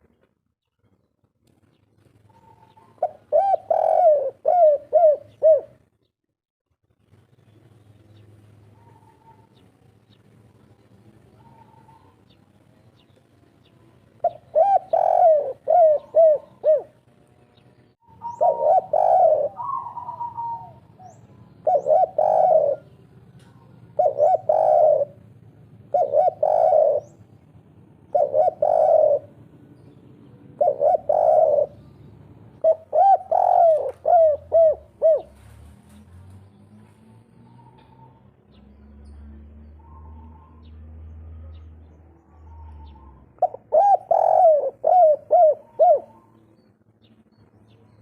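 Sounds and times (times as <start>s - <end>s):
small birds chirping: 0.6s - 6.1s, 7.2s - 48.0s
dove cooing: 2.3s - 5.8s, 8.7s - 9.6s, 11.3s - 12.3s, 14.2s - 17.0s, 18.0s - 36.0s, 41.3s - 46.5s.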